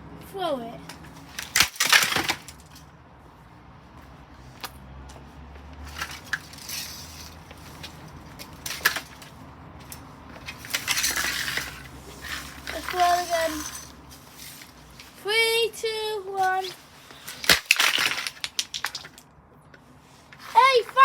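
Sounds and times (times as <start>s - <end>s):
broken parts rattling: 0.9s - 2.9s, 6.0s - 15.1s, 16.4s - 19.3s
fan heater crashing to floor: 1.4s - 2.7s.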